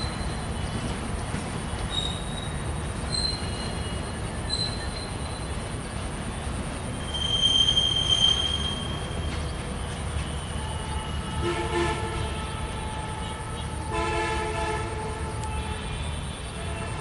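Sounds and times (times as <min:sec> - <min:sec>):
train running rumble: 0:00.0 - 0:17.0
high wheel squeal: 0:01.8 - 0:05.6, 0:06.8 - 0:11.3
distant multi-tone train horn: 0:10.0 - 0:17.0.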